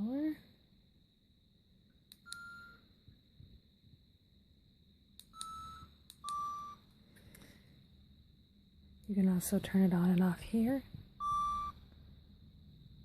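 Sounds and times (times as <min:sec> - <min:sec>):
faint steady high tone: 0:01.8 - 0:07.8, 0:08.8 - 0:13.0
short beeps: 0:11.2 - 0:11.8.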